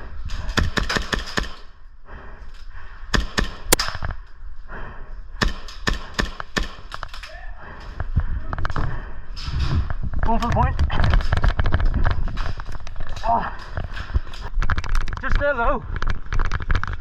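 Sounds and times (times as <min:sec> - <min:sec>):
airsoft guns firing bursts: 0:00.5 - 0:01.7, 0:03.1 - 0:03.8, 0:05.4 - 0:07.0.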